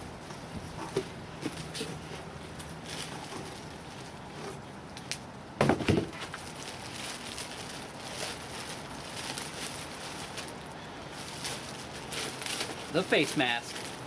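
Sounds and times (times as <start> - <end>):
packaging rustling and crackling: 0.8 - 5.2, 5.8 - 14.0
thump: 5.6 - 6.1.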